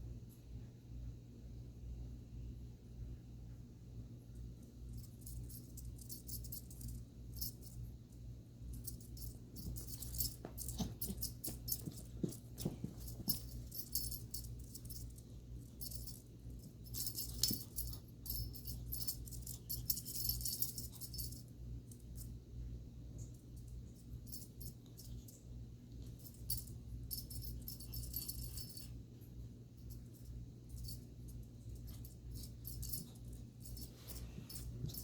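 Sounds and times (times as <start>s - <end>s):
low hum: 0.1s - 35.0s
bell toy jingling: 5.0s - 7.7s, 8.8s - 21.5s, 26.1s - 29.0s, 29.8s - 35.0s.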